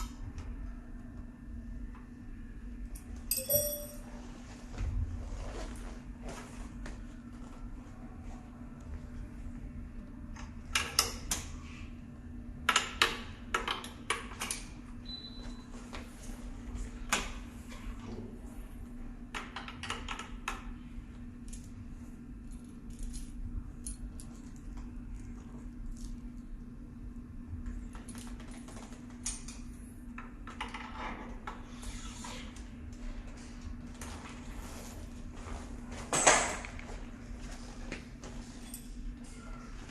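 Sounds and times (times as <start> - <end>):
steady low hum: 0.0 - 30.5.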